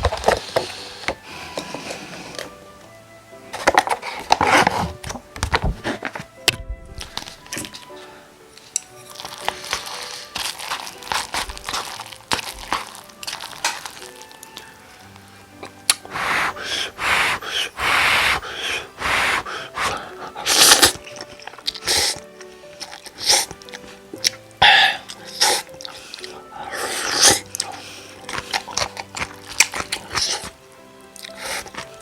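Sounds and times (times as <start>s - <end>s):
soft background music: 0.0s - 32.0s
slurping and chewing noodles: 8.7s - 32.0s.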